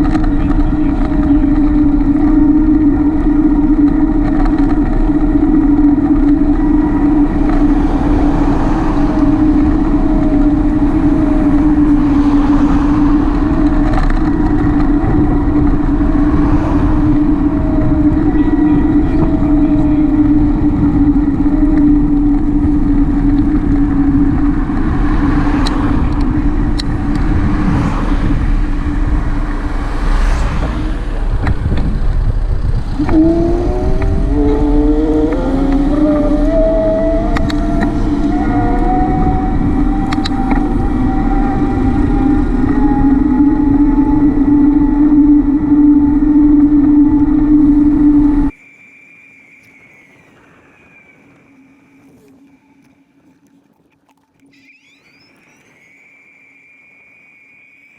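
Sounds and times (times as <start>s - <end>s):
bicycle ride hum and rumble: 0.0s - 57.9s
faint wavering tone: 33.0s - 53.6s, 54.3s - 57.9s.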